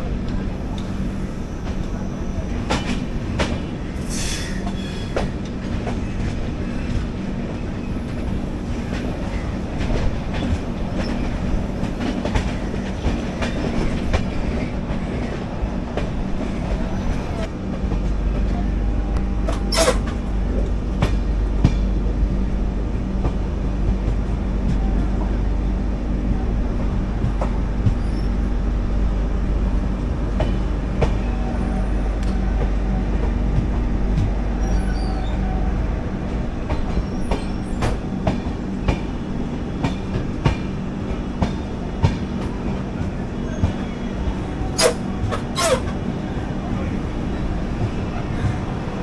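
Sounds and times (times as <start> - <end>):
train rumble: 0.0 - 49.0
train wheel screech: 4.0 - 5.4, 19.5 - 20.2, 34.6 - 35.7, 36.7 - 38.0, 43.4 - 46.0
wheels clicking over rail joints: 44.6 - 46.0.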